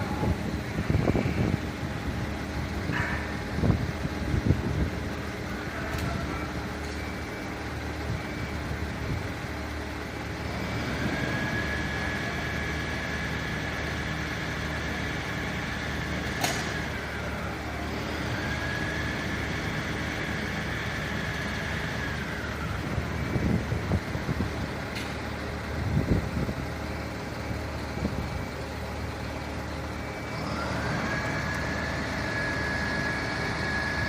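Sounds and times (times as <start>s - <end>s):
fire engine rumbling: 0.0s - 34.0s
faint siren wail: 5.3s - 9.0s, 11.0s - 16.2s, 16.8s - 24.5s, 30.0s - 34.0s
sharp click: 16.4s - 16.8s.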